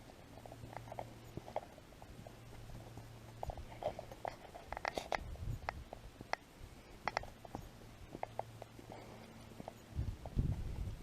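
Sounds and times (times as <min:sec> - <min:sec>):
footsteps crunching on a trail: 0:00.0 - 0:10.9.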